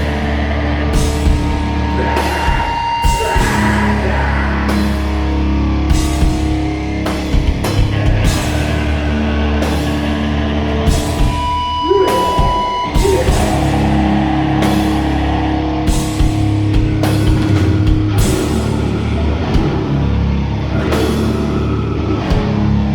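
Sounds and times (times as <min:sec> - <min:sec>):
distorted guitar and bass: 0:00.0 - 0:22.9
drums: 0:00.0 - 0:22.9
high feedback tone: 0:11.0 - 0:16.7.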